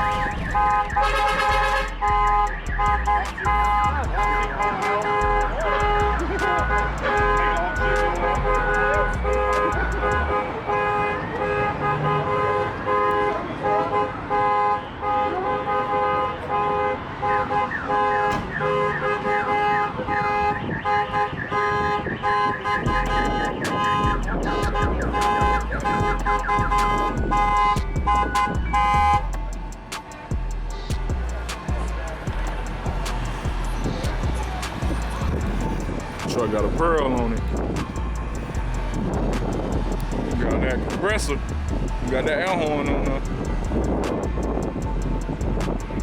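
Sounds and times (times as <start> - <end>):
deep bass: 0.0 - 10.6, 22.8 - 46.0
truck air horn blasts: 0.0 - 46.0.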